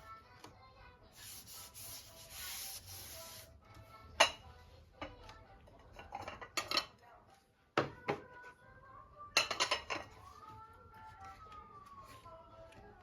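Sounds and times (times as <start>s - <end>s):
scraping rubbing strokes: 1.2s - 3.5s.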